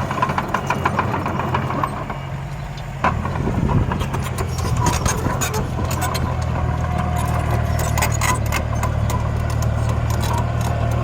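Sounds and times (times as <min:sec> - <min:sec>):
small machine engine drone: 0:00.0 - 0:11.0
soil and stones scraping: 0:03.1 - 0:11.0.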